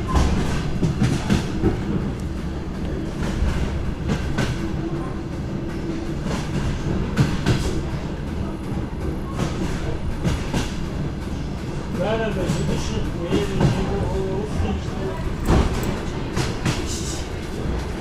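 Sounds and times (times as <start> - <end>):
train low rumble: 0.0 - 18.0
wheels clacking over rail joints: 5.8 - 18.0.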